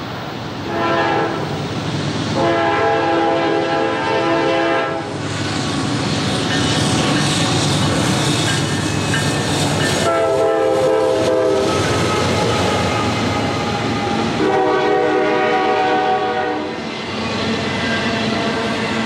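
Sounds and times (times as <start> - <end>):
diesel locomotives running: 0.0 - 19.0
locomotive horn blasts: 0.7 - 1.5, 2.4 - 5.1, 10.0 - 13.2, 14.3 - 16.8
train wheels clattering on rails: 4.5 - 19.0.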